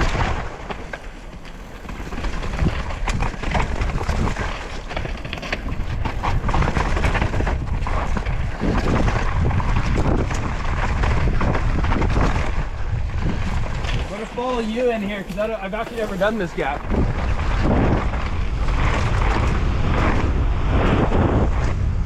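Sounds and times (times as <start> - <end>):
bike rattling and clicking: 0.0 - 22.0
bike tyres on rough dirt: 0.0 - 22.0
wind rushing over microphone: 0.0 - 22.0.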